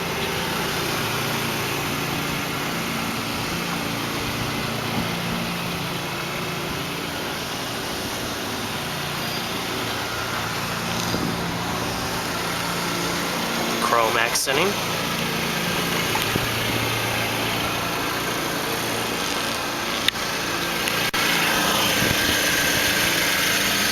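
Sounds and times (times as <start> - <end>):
car engine idling: 0.0 - 23.9.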